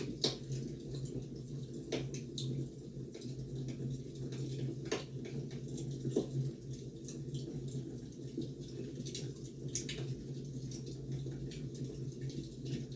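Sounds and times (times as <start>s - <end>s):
sharp pops and snaps: 0.0s - 0.7s, 1.8s - 2.5s, 4.8s - 5.4s
wood fire crackling: 0.0s - 12.9s.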